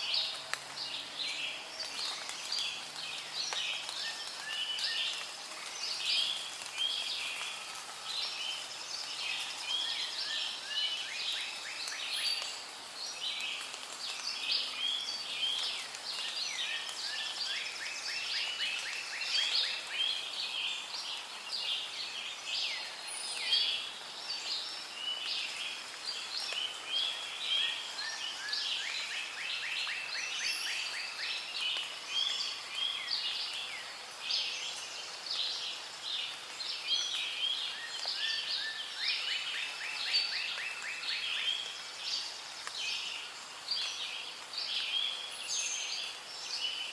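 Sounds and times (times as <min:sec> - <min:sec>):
chorus of bird calls: 0:00.0 - 0:46.9.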